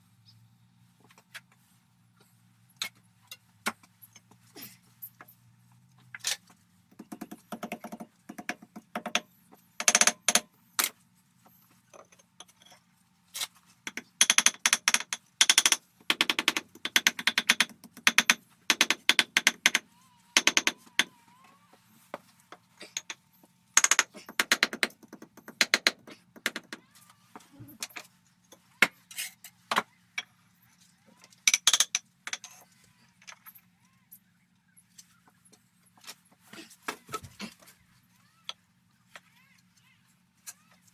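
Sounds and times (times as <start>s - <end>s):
hand tool scraping and clicking: 7.1s - 11.0s, 13.4s - 19.8s, 20.4s - 21.1s, 22.8s - 23.2s, 23.8s - 26.8s, 31.5s - 33.6s.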